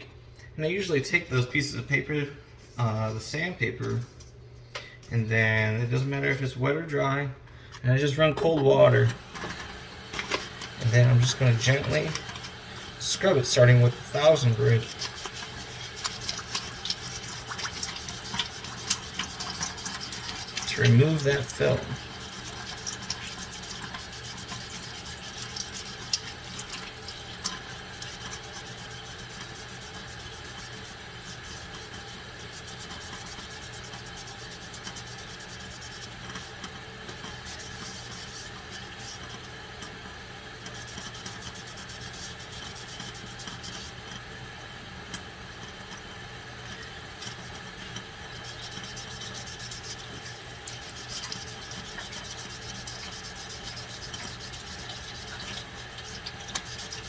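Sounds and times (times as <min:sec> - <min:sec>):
tap water running into sink: 0:09.1 - 0:57.0
sandpaper rubbing on lens: 0:27.8 - 0:36.6, 0:37.3 - 0:39.6, 0:40.7 - 0:44.0, 0:48.3 - 0:57.0.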